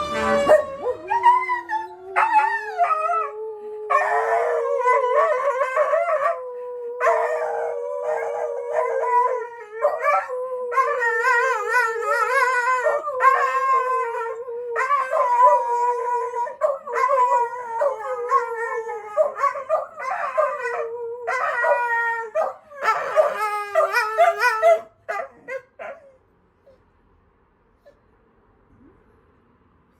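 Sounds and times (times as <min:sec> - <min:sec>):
fire engine siren: 0:00.0 - 0:03.0
dogs howling: 0:00.0 - 0:26.1.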